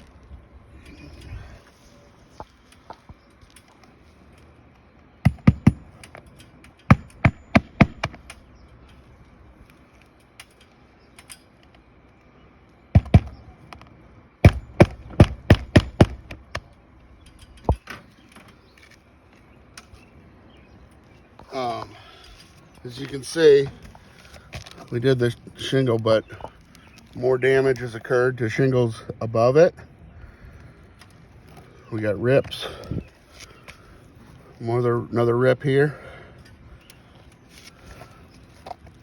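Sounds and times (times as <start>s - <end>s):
hammer striking nails: 5.3s - 6.1s, 6.9s - 8.4s, 13.0s - 13.4s, 14.4s - 16.6s.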